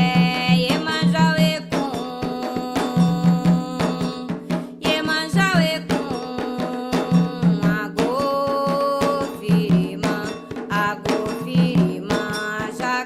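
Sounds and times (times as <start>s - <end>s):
hand drums beating: 0.0s - 13.0s.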